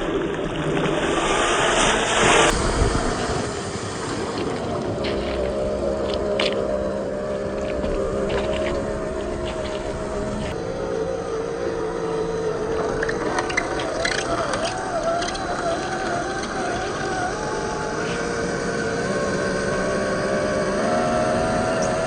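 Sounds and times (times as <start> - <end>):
electric motor whining: 5.0 - 22.0.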